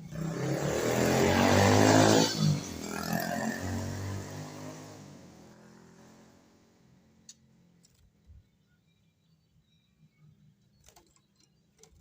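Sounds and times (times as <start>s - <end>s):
vehicle engine passing by: 0.0s - 6.8s.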